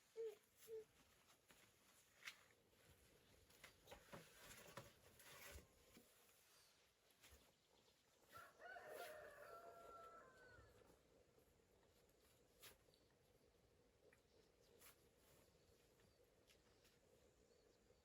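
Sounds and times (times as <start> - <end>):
rooster crowing: 8.3 - 10.8.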